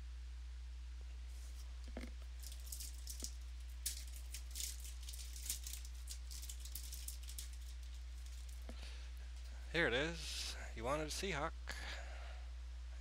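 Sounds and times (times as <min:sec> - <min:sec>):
low electrical hum: 0:00.0 - 0:13.0
cards and packaging rustling: 0:01.4 - 0:08.8.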